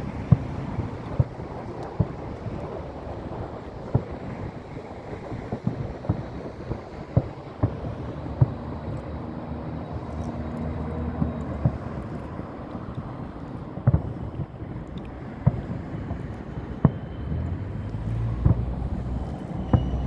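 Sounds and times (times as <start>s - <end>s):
fireworks bursting: 0.2s - 9.0s, 13.7s - 20.0s.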